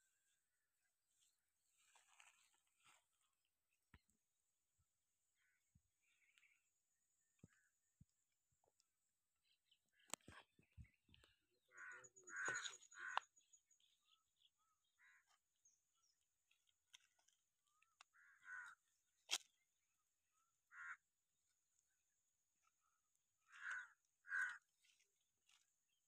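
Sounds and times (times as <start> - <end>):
bird calling: 9.9 - 15.4, 23.4 - 25.6.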